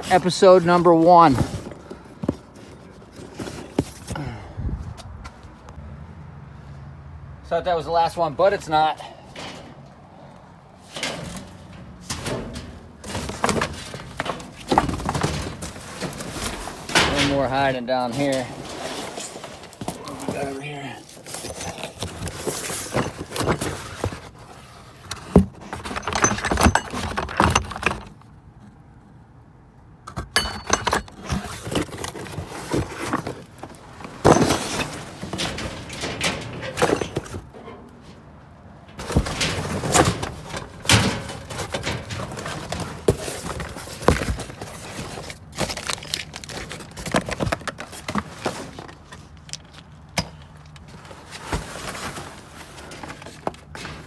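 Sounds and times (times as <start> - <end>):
metal hardware clanking: 9.2 - 18.8, 25.2 - 28.2, 30.1 - 48.9, 49.5 - 50.8.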